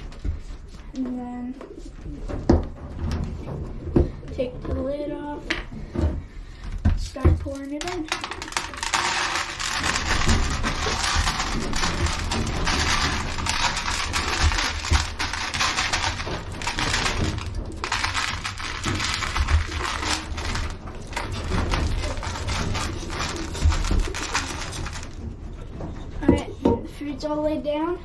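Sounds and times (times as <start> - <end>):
grain pouring rattle: 7.8 - 25.3.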